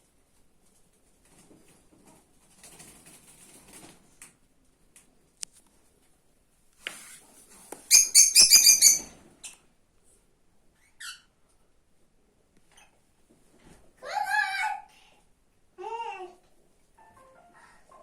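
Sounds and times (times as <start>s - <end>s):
soft rustling: 5.4s - 7.9s
lovebird shrill chirps: 7.9s - 9.1s.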